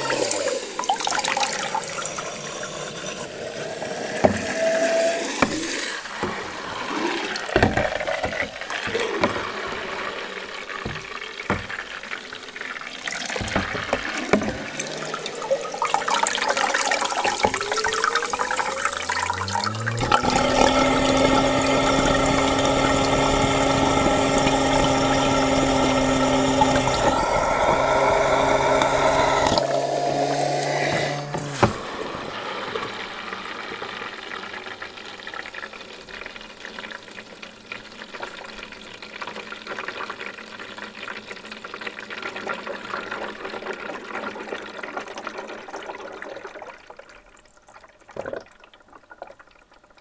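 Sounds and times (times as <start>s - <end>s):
water sloshing and gurgling: 0.0s - 34.6s
vacuum motor whine and hum: 19.0s - 33.2s.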